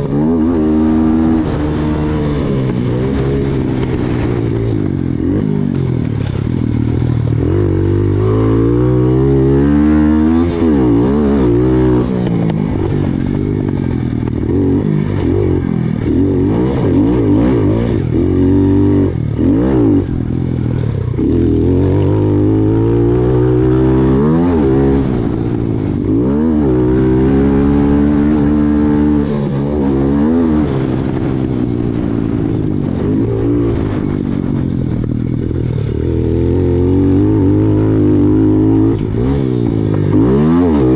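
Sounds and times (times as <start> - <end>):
motorbike engine revving: 0.0 - 40.9.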